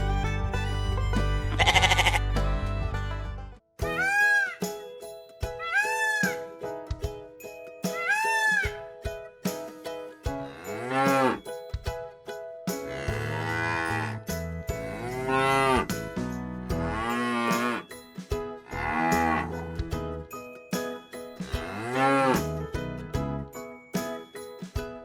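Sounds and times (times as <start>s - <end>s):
cow mooing: 12.9s - 14.2s, 16.9s - 17.8s, 18.8s - 19.5s, 21.6s - 22.4s.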